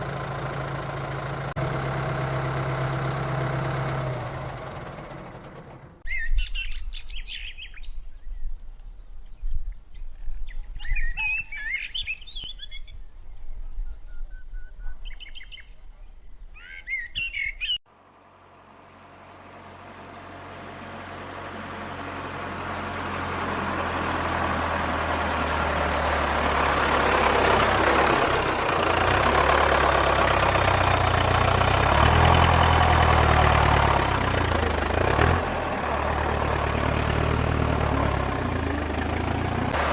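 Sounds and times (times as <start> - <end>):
engine: 0.0 - 7.6, 17.4 - 39.9
birds chirping: 10.5 - 17.8.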